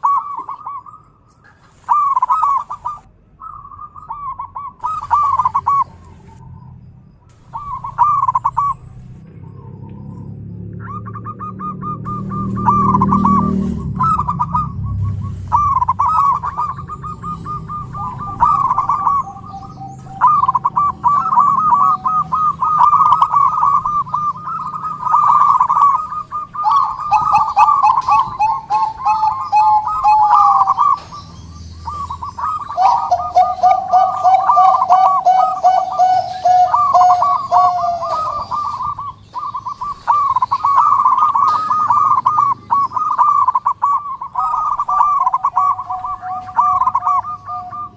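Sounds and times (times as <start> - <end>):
doves cooing: 0.0 - 47.9.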